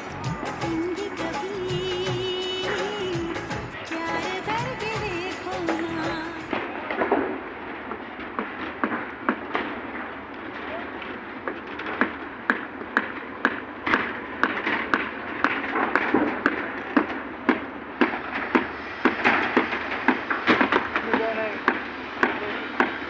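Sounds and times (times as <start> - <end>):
people's voices: 0.0 - 7.1, 20.6 - 23.0.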